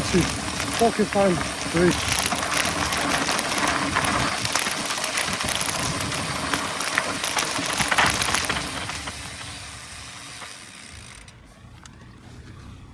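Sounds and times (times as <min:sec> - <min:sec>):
bike rattling over rough ground: 0:00.0 - 0:12.9
bike tyres rolling on trail: 0:00.0 - 0:12.9.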